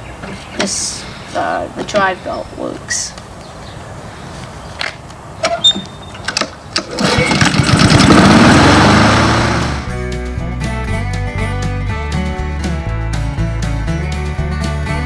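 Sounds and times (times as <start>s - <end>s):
lawn mower engine starting: 5.4s - 10.0s.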